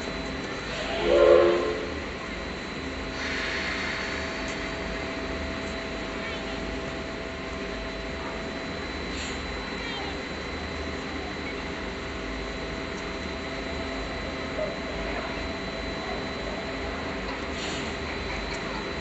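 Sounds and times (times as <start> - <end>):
steam locomotive whistle: 0.8 - 2.0
steam hissing: 3.1 - 5.1, 17.4 - 18.1.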